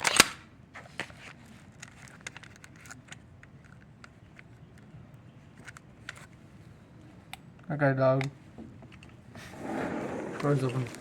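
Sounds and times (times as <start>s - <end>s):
faint clicks and rustles: 0.8s - 7.7s.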